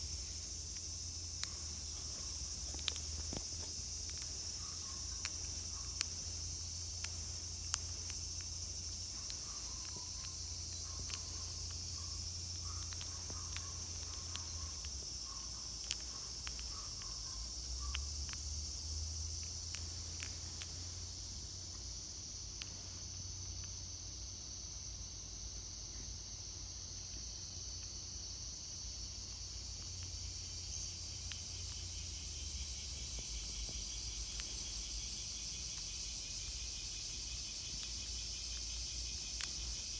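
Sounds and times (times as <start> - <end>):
cicada chorus drone: 0.0 - 39.9
light clicks: 0.7 - 6.4, 7.0 - 18.4.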